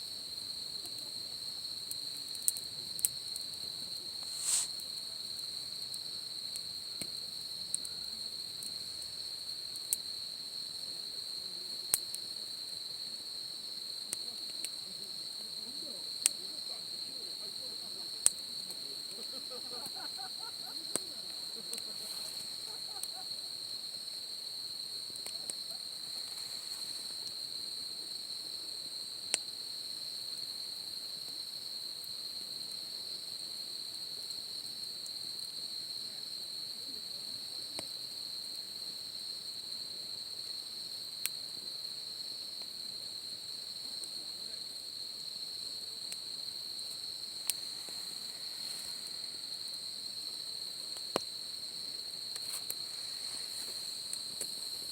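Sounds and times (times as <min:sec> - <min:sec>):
insects trilling: 0:00.0 - 0:54.9
campfire pops: 0:00.7 - 0:10.1, 0:11.8 - 0:12.4, 0:14.0 - 0:24.2, 0:24.8 - 0:27.6, 0:46.0 - 0:54.9.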